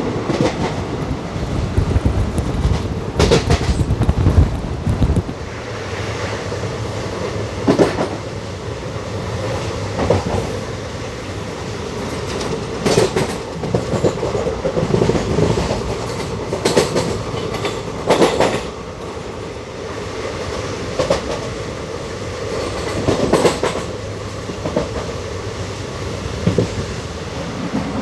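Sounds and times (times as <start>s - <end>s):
train rolling rumble: 0.0s - 28.0s
wheels clattering over rail joints: 0.2s - 5.6s.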